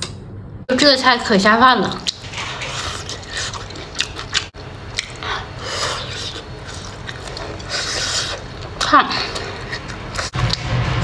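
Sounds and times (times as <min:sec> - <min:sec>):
person chewing wetly: 0:02.0 - 0:10.6.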